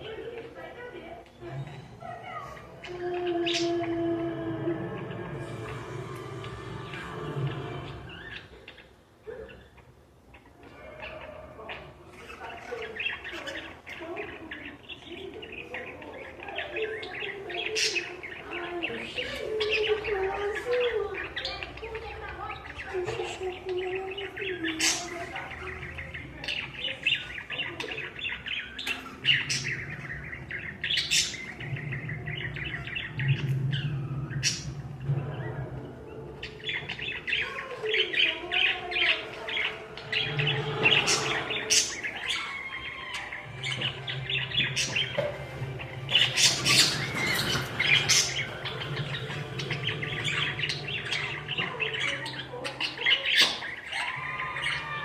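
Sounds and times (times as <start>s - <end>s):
budgerigars chattering and chirping: 5.0s - 55.0s.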